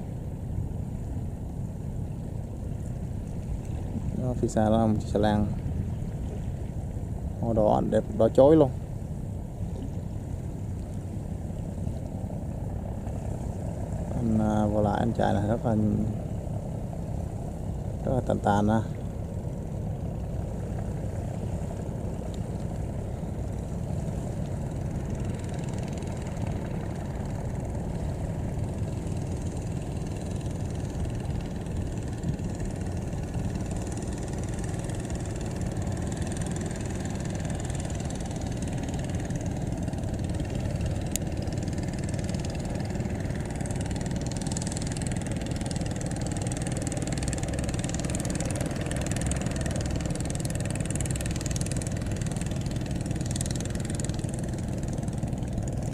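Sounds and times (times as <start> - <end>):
boat engine droning: 0.0 - 55.9.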